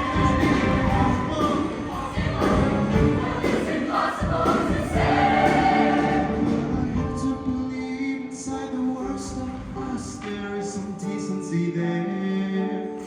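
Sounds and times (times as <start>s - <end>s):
choir singing: 0.0s - 7.1s
live band accompaniment: 0.0s - 13.0s.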